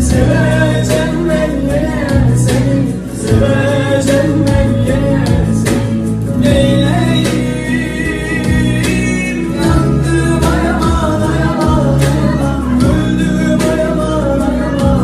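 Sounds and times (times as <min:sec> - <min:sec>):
plucked strings with beat: 0:00.0 - 0:15.0
young man singing: 0:00.0 - 0:15.0.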